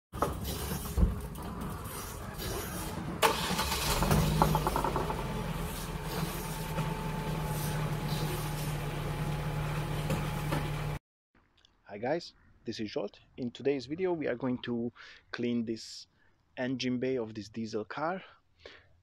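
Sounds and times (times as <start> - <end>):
diesel engine cranking and idling: 0.2 - 11.0.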